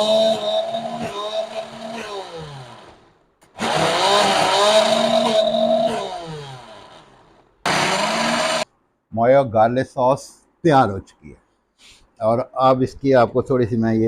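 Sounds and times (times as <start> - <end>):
electric blender motor: 0.0 - 8.6.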